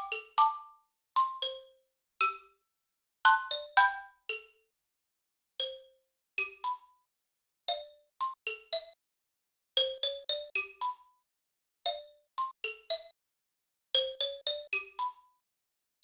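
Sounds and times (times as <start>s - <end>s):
bell-like music notes: 0.0s - 2.4s, 3.3s - 4.4s.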